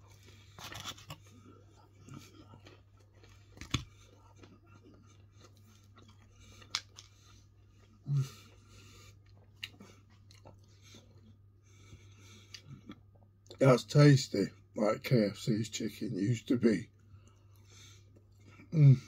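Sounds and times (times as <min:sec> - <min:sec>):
person chewing crispy chicken: 0:00.0 - 0:13.6
steady low hum: 0:00.0 - 0:19.0.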